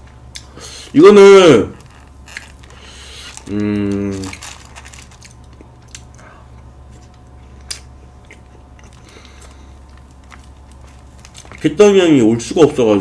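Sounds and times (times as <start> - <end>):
steady low hum: 0.0 - 13.0
mouth chewing: 3.2 - 11.6.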